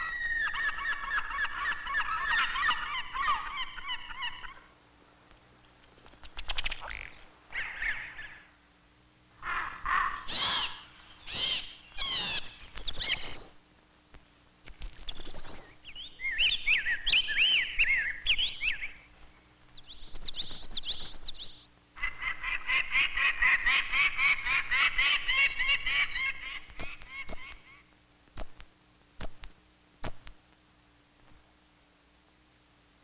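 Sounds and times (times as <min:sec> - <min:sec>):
birds singing: 0:00.0 - 0:04.8, 0:05.8 - 0:08.6, 0:09.4 - 0:13.6, 0:14.8 - 0:28.6, 0:31.2 - 0:31.6.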